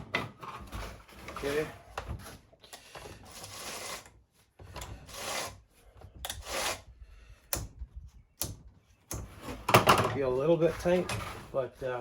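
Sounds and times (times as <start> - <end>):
scraping of chainsaw parts: 0.0 - 5.6.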